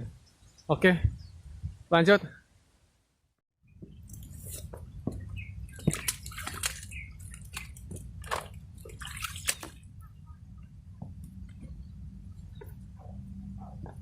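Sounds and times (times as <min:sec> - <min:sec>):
water sloshing and splashing: 0:03.9 - 0:14.0
steady low rumble: 0:09.8 - 0:14.0.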